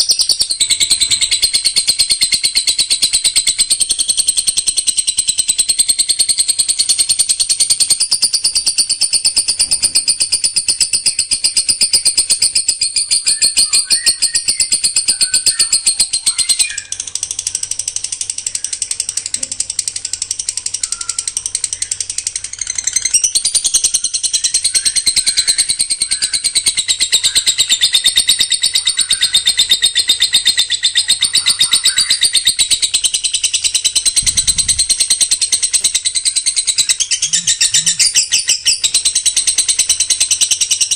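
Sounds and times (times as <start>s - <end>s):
songbird rapid high trill: 10.5s - 40.9s.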